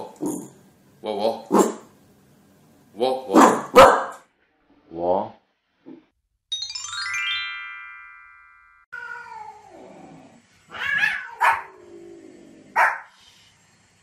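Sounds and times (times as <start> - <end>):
small dog barking: 3.4 - 4.2, 10.8 - 11.8, 12.7 - 13.1
bell-like chime: 6.5 - 8.9
cat meowing: 8.9 - 9.8, 10.7 - 11.7.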